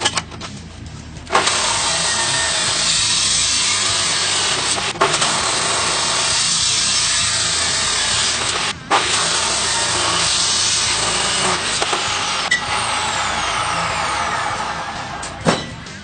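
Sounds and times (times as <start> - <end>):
power tool grinding: 1.3 - 16.0.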